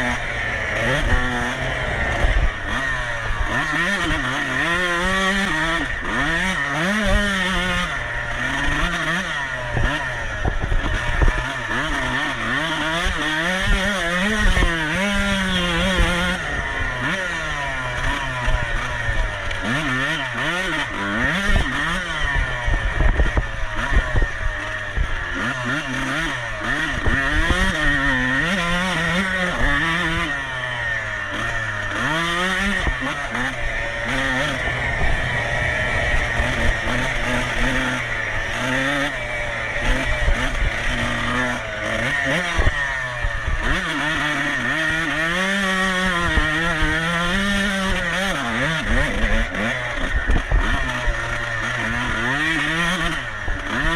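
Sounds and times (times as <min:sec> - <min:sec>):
motorcycle engine revving: 0:00.0 - 0:53.9
low knocks and rumble: 0:34.4 - 0:38.5.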